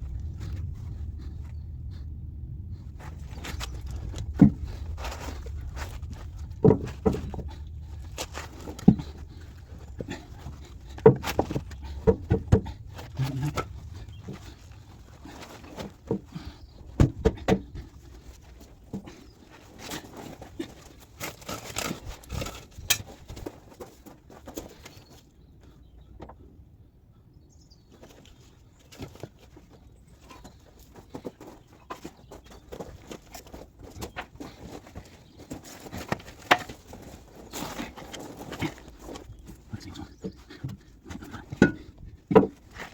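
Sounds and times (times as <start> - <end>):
low rumble: 0.0 - 11.0, 11.7 - 17.0.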